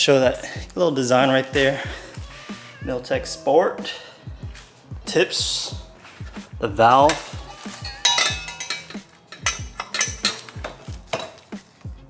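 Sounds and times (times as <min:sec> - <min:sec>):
background music with beat: 0:00.0 - 0:12.0
metal exhaust parts clinking: 0:06.8 - 0:11.6.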